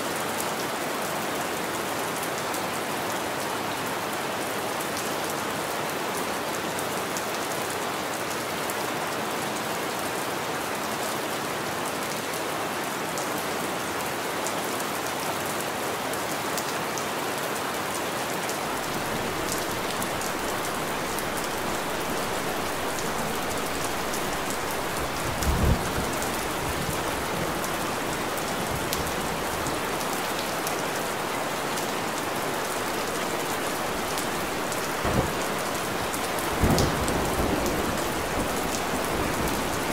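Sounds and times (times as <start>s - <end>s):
rain pattering: 17.9s - 39.9s.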